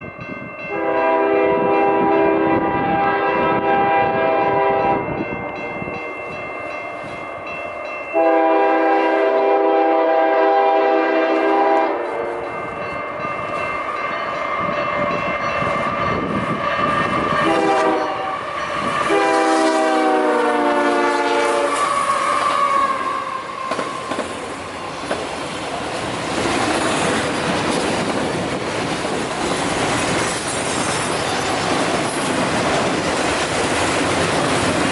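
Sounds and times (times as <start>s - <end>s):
train cars rumbling and clattering: 0.0s - 34.9s
locomotive horn blasts: 0.7s - 6.1s, 8.2s - 12.6s, 17.3s - 23.5s.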